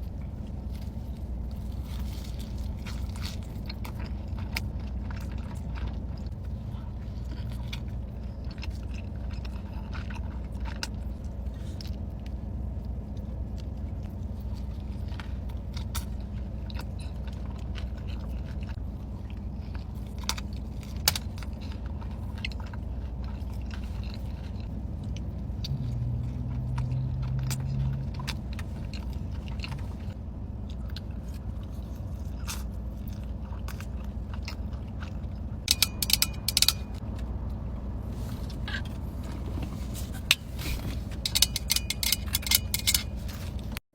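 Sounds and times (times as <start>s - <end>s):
chewing and crunching: 0.0s - 43.8s
low humming tone: 0.0s - 43.8s
steady low hum: 0.0s - 43.8s.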